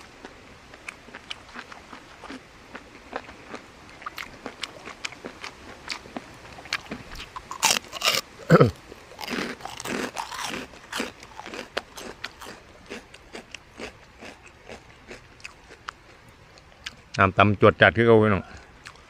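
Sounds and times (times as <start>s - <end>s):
crunchy chewing: 0.0s - 17.2s, 18.4s - 19.0s
mouth noise: 8.0s - 8.8s.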